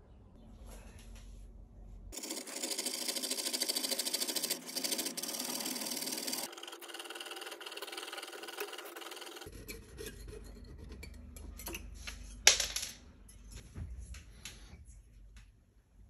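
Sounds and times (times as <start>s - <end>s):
saw rasping through metal: 2.2s - 11.2s.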